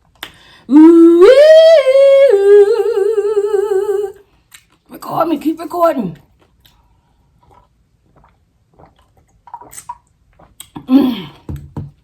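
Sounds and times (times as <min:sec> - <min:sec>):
woman speaking: 0:04.9 - 0:06.2
quiet chewing: 0:06.2 - 0:10.9.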